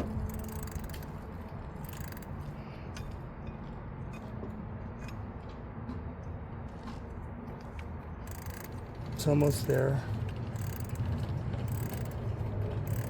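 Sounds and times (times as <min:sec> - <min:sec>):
wrench clicking on bolt: 0:00.0 - 0:01.2, 0:01.8 - 0:02.4, 0:08.3 - 0:08.8, 0:09.5 - 0:09.9, 0:10.6 - 0:11.0, 0:11.7 - 0:12.2
steady low hum: 0:00.0 - 0:03.9, 0:08.1 - 0:13.0.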